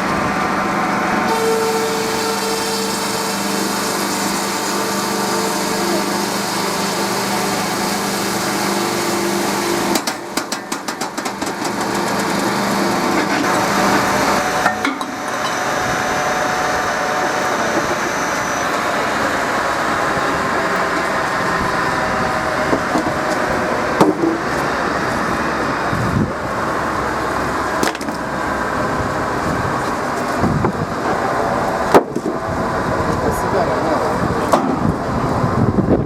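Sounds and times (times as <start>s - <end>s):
timber processing machinery running: 0.0s - 36.0s
wood knocking against machinery: 24.0s - 24.4s.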